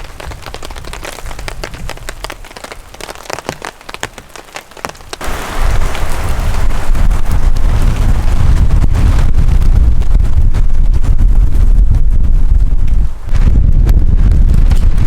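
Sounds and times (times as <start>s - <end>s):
rain drops striking close: 0.0s - 15.0s
wind gust on microphone: 5.2s - 15.0s
loud low rumble: 5.3s - 15.0s.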